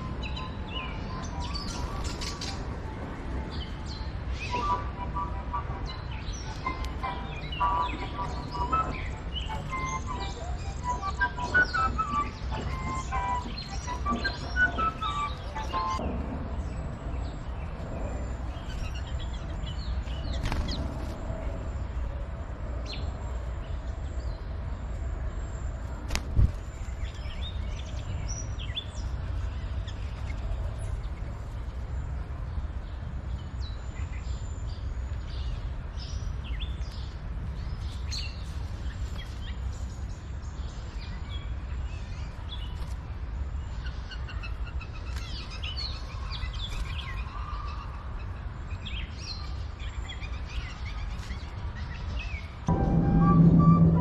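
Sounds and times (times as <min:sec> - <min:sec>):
small birds chirping: 0:00.0 - 0:52.7
low background rumble: 0:52.6 - 0:54.0.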